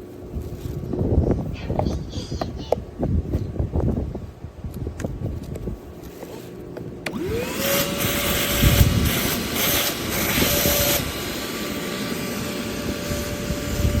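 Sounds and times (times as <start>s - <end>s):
vacuum motor high whine: 5.5s - 14.0s.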